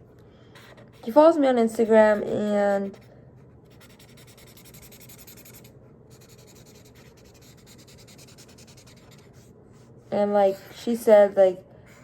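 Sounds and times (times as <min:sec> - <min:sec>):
drawing tool scratching paper: 0:00.6 - 0:09.9.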